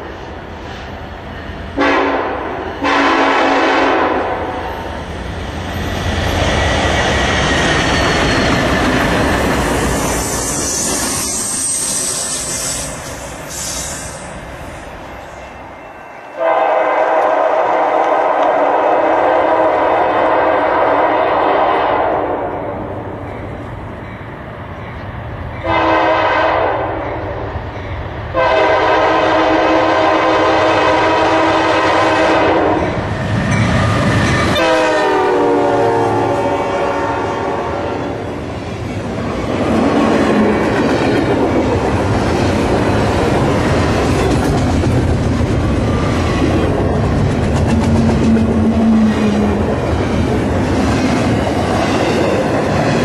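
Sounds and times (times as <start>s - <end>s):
train rumble and wheel clatter: 0.0s - 53.0s
locomotive air horn blasts: 1.8s - 4.5s, 16.4s - 22.4s, 25.6s - 27.0s, 28.4s - 33.0s, 34.6s - 38.1s.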